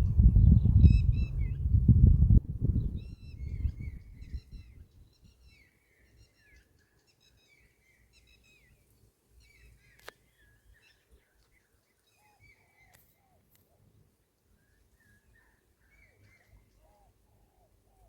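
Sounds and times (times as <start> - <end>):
low rumble: 0.0 - 4.1
bird singing chirps and whistles: 0.3 - 1.8.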